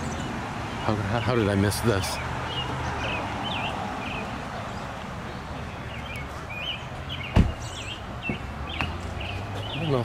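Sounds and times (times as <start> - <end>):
low outdoor background noise: 0.0 - 10.0
songbird chirping: 0.0 - 10.0
sharp knock: 7.3 - 7.6.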